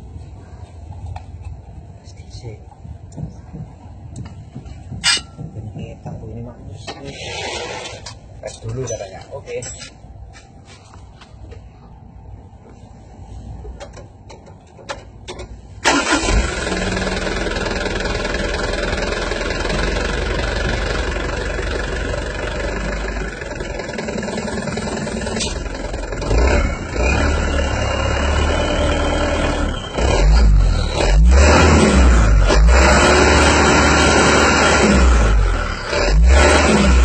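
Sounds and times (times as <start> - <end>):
diesel truck engine idling: 15.6 - 35.9.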